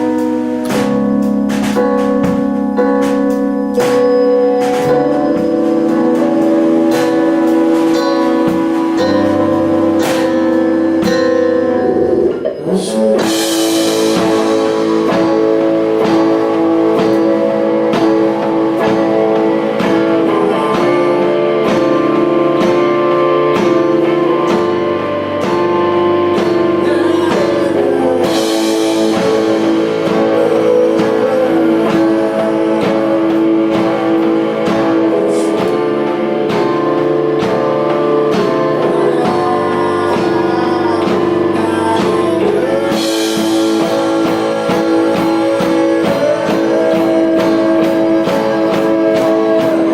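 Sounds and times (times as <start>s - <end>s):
cymbals crashing: 0.0s - 40.2s
rock band playing live: 0.0s - 49.9s.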